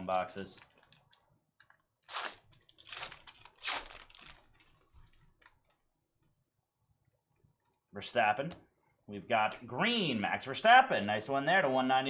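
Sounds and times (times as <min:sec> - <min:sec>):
wrapper crinkling: 0:00.0 - 0:05.9
foil pack tearing open: 0:02.0 - 0:04.5.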